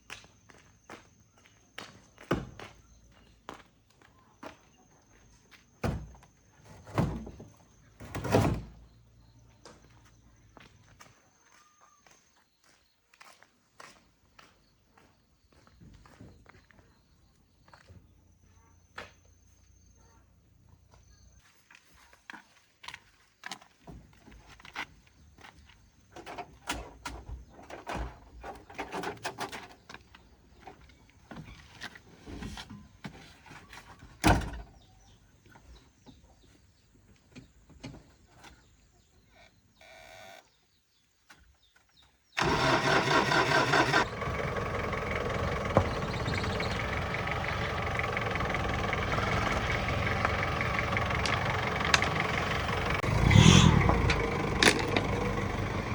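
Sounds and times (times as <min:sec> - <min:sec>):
car engine starting and idling: 0:42.4 - 0:55.9.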